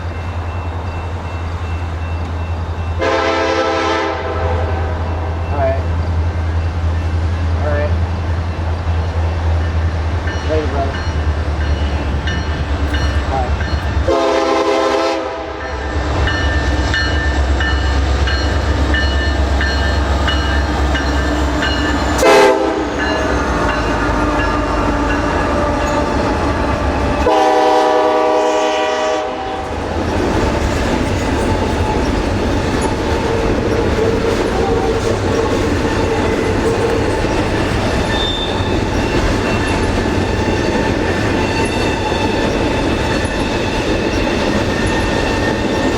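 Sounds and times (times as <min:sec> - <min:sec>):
diesel locomotive engine rumble: 0:00.0 - 0:45.9
train cars rolling and clattering: 0:00.0 - 0:45.9
train air horn: 0:03.0 - 0:05.3, 0:14.0 - 0:15.7, 0:22.2 - 0:23.0, 0:27.2 - 0:29.7.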